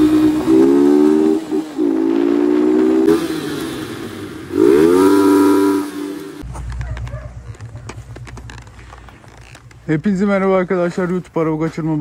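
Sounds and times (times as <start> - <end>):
motorcycle engine revving hard: 0.0 - 6.4.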